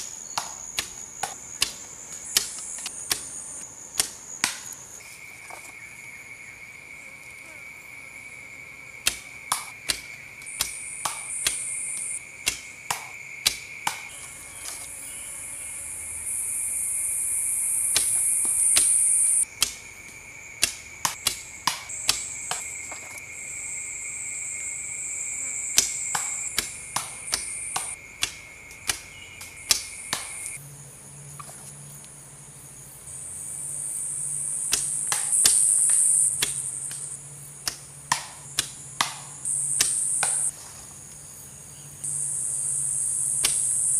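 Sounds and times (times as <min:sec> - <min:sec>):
insects chirring: 0:00.0 - 0:43.9
high buzz: 0:13.8 - 0:19.4.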